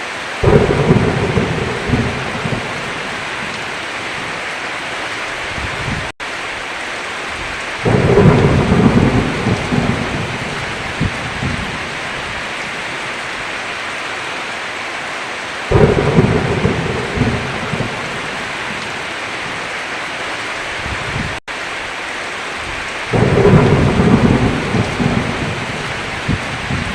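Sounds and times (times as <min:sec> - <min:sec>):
heavy rain: 0:00.0 - 0:26.9
thunder rumbles: 0:00.4 - 0:04.4, 0:07.8 - 0:13.0, 0:15.7 - 0:19.7, 0:23.0 - 0:26.9.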